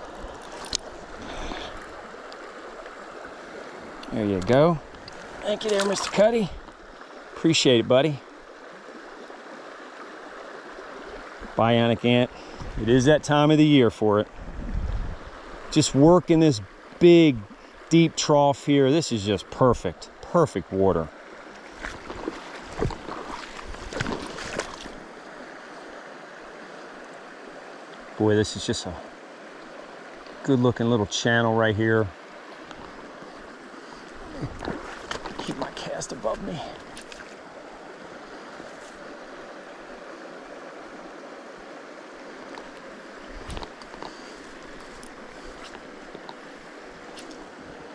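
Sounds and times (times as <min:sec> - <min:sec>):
stream water running: 0:00.0 - 0:47.9
short splashes and knocks: 0:04.4 - 0:06.4, 0:21.6 - 0:25.0, 0:34.3 - 0:37.4.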